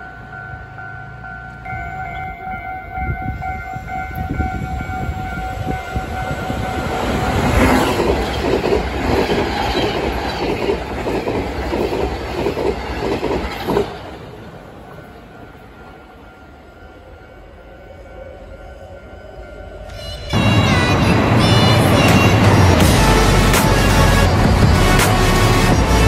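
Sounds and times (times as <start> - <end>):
level-crossing warning bell: 0.0 - 10.5, 14.2 - 21.3.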